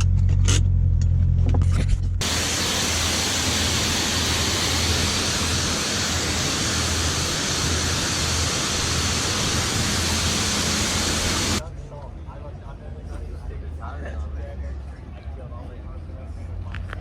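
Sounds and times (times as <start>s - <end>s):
low car engine drone: 0.0s - 11.8s.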